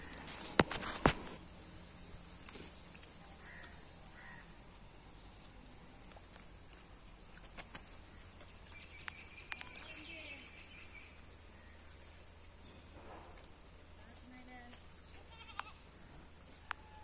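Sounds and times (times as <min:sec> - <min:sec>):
sharp clicks: 0:07.4 - 0:09.9.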